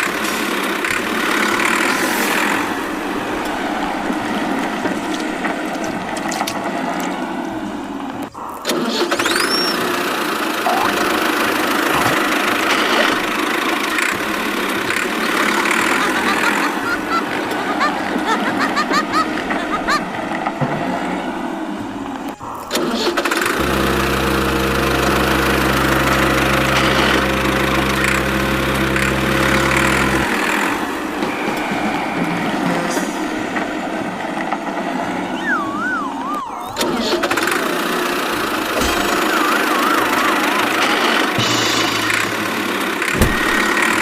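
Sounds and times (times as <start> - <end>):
tractor engine running: 0.0 - 44.0
warbling wavering tone: 10.6 - 11.2, 35.3 - 37.7, 38.7 - 41.5.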